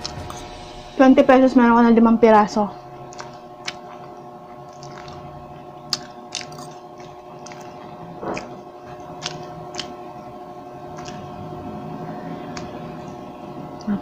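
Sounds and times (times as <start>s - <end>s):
background hum: 0.0s - 14.0s
person chewing food: 2.9s - 14.0s
wet mouth clicks and smacks: 3.1s - 5.3s, 5.9s - 10.0s, 10.9s - 11.3s.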